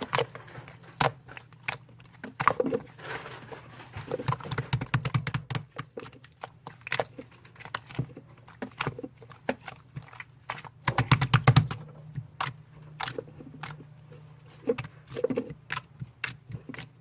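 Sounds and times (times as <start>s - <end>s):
slime squished by hand: 4.0s - 13.9s.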